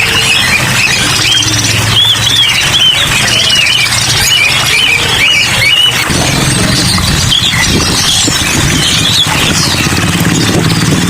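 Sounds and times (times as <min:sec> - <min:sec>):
songbirds chirping: 0:00.0 - 0:11.0
low hum: 0:06.0 - 0:11.0.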